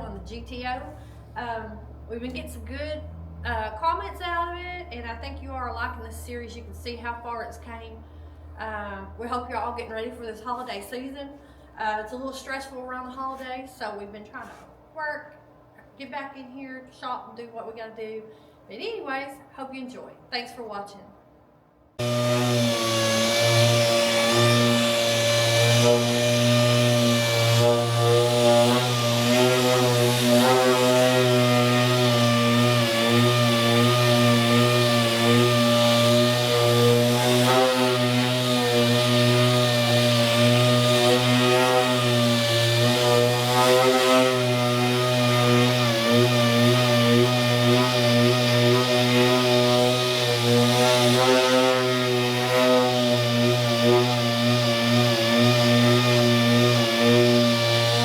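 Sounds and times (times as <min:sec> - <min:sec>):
power tool motor hum: 0:22.0 - 0:58.0.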